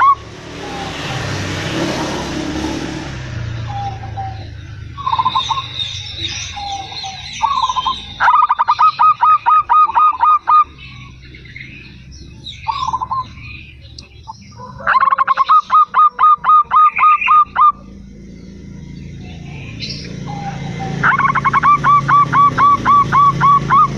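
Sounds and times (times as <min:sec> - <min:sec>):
small birds chirping: 0:03.4 - 0:23.9
dove cooing: 0:05.0 - 0:11.0, 0:14.5 - 0:17.9, 0:19.4 - 0:23.9.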